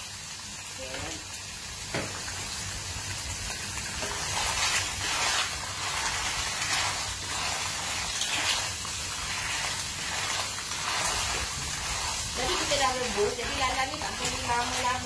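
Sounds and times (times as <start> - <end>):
clams sizzling in oil: 0.0 - 15.0
wooden spatula stirring in a wok: 3.5 - 15.0.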